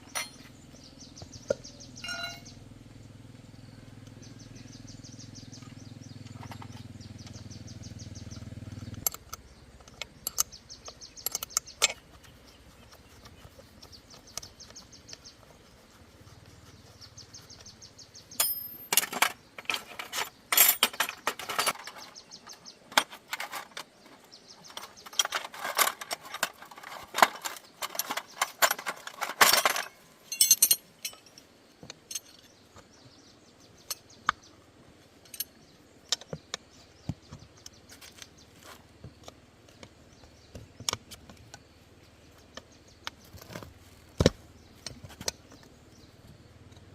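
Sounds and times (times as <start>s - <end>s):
metal tools clinking: 0.0s - 0.6s, 2.0s - 2.6s, 11.2s - 12.1s, 18.4s - 23.9s, 24.6s - 32.6s, 35.2s - 36.2s.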